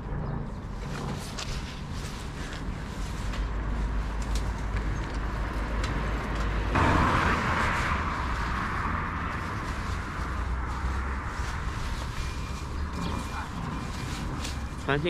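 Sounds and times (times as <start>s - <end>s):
road traffic rumble: 0.0s - 15.0s
vehicle rushing past: 4.8s - 15.0s.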